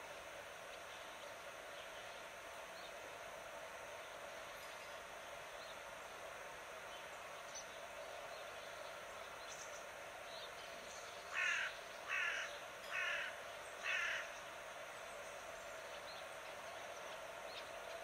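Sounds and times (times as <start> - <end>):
outdoor background noise: 0.0 - 18.0
bird calling: 11.3 - 14.4.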